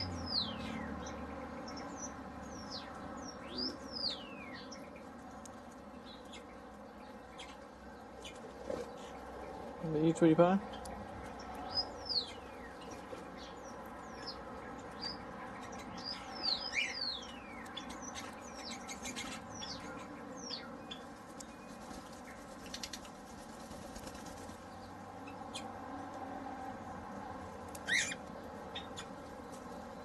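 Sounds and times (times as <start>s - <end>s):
birds chirping whistled calls: 0.0s - 5.0s, 10.7s - 21.9s, 27.8s - 29.2s.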